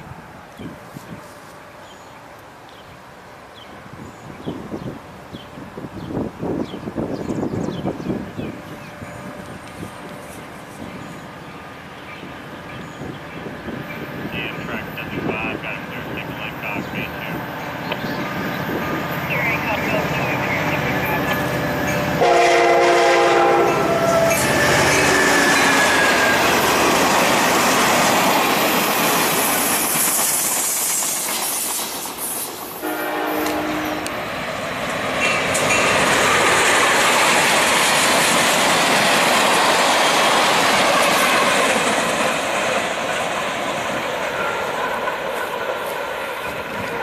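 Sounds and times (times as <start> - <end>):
passing train rumble: 0.0 - 47.0
train air horn chord: 22.2 - 26.4, 32.8 - 34.2.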